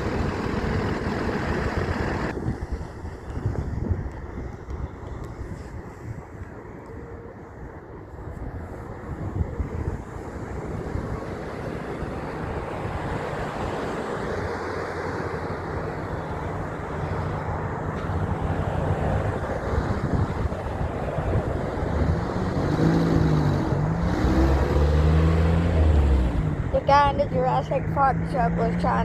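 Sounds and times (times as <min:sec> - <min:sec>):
heavy truck engine and tyres: 0:00.0 - 0:29.0
highway traffic: 0:00.0 - 0:29.0.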